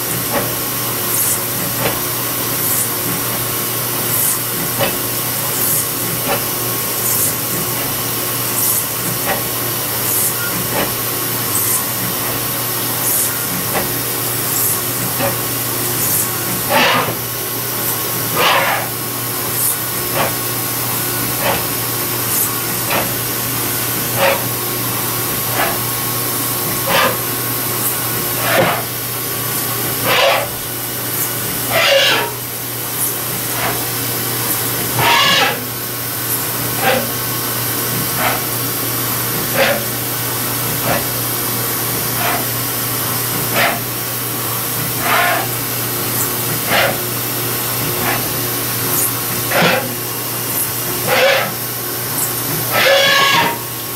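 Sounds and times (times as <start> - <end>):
milling machine cutting hiss: 0.0 - 53.9
cutter squealing: 7.0 - 37.2, 50.6 - 53.7.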